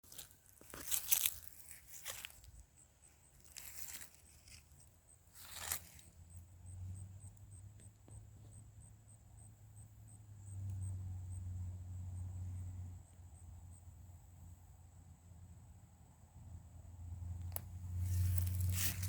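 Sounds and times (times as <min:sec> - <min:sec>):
crunching rustles on dry ground: 0:00.0 - 0:06.2, 0:17.5 - 0:19.0
insect chirping: 0:01.0 - 0:15.8.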